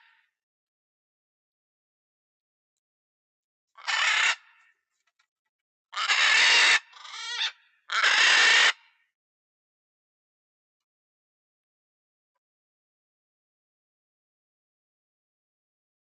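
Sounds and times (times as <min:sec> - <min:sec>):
macaw screeching: 0:03.8 - 0:04.6, 0:06.0 - 0:08.8.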